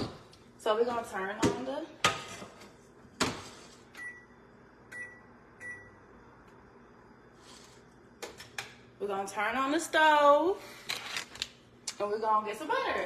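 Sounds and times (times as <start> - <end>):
stove touch control beeps: 4.0 - 6.0.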